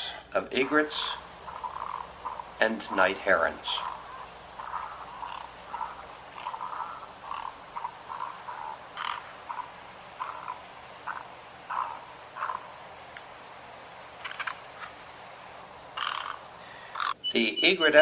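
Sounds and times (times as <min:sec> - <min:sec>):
herons calling harshly: 0:00.0 - 0:18.0.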